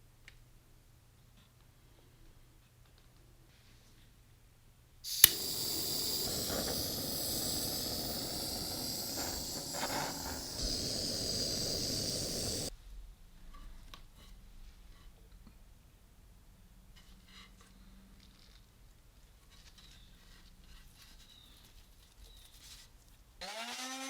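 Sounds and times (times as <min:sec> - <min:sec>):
loud steady hiss: 0:05.1 - 0:12.7
sharp click: 0:05.1 - 0:12.7.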